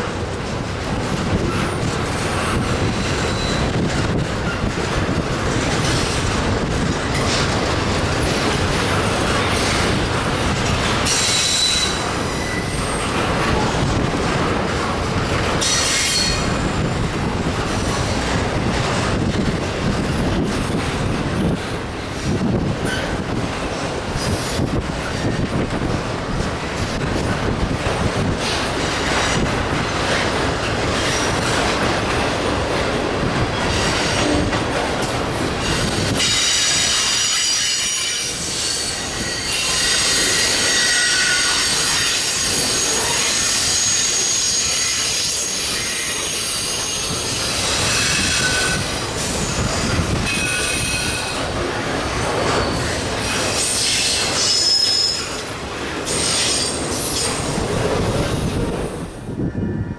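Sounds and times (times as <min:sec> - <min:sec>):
freight train wheels clacking on rails: 0:00.0 - 0:59.9
high-pitched wheel squeal: 0:11.1 - 0:13.1, 0:35.7 - 0:51.4, 0:52.6 - 0:55.4.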